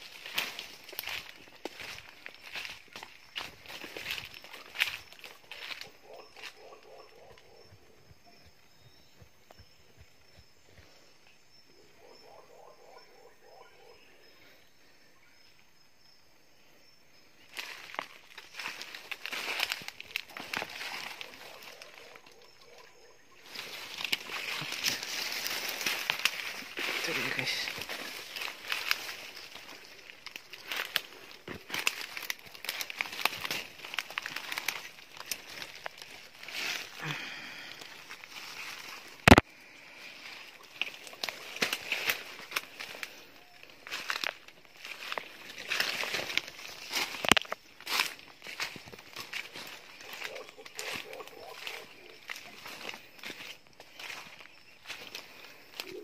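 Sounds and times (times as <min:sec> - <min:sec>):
foliage rustling and crackling: 0:00.0 - 0:06.9, 0:17.4 - 0:22.3, 0:23.4 - 0:56.0
low repeated animal calls: 0:03.4 - 0:15.5, 0:18.5 - 0:39.0, 0:49.2 - 0:56.0.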